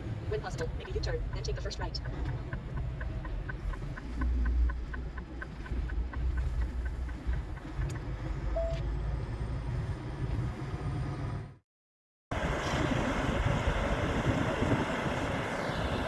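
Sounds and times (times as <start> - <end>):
truck engine rumble: 0.0 - 11.6
turn signal clicking: 0.4 - 8.9.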